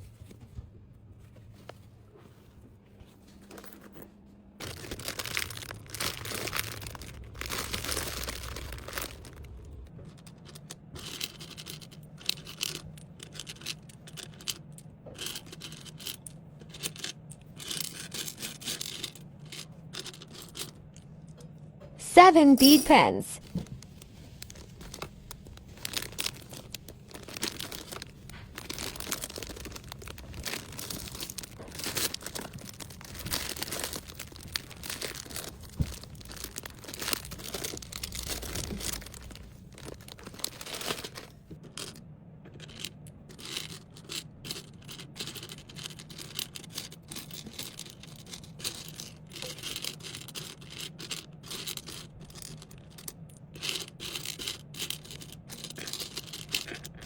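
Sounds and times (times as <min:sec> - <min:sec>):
packaging rustling and tearing: 0:04.6 - 0:12.8, 0:23.4 - 0:41.4.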